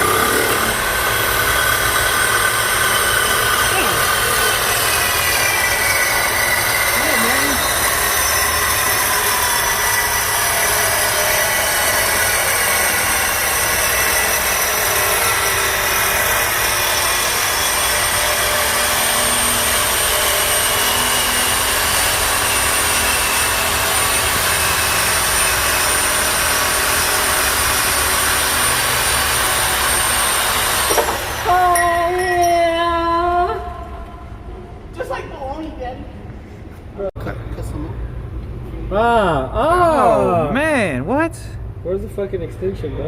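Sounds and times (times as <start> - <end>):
power saw cutting steel pipe: 0.0 - 31.6.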